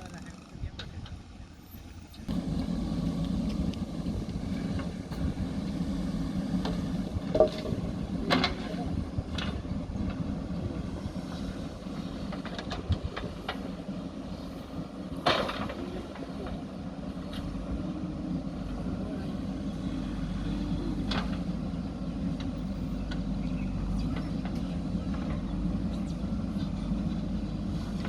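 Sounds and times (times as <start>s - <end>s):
diesel engine running: 0.0s - 28.0s
sharp knocks and clanks: 6.6s - 9.6s.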